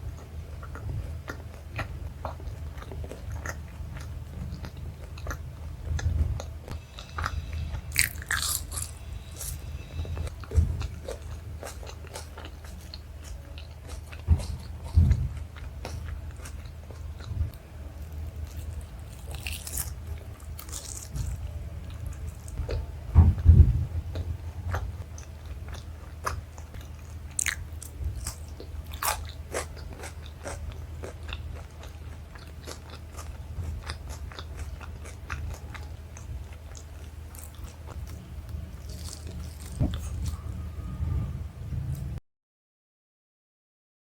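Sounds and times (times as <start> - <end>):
biting and chewing food: 0.0 - 40.6
heavy low thumps: 5.4 - 11.6, 14.2 - 16.3, 21.2 - 25.1, 37.9 - 42.2
crunching: 6.9 - 17.3, 18.0 - 22.8, 24.1 - 40.6.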